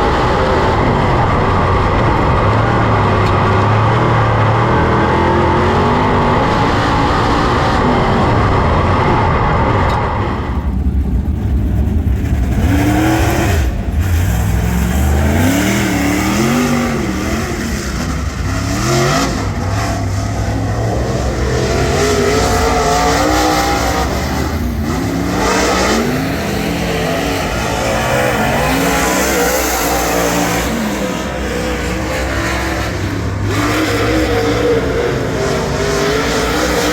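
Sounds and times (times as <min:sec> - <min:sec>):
race car engine revving: 0:00.0 - 0:36.9.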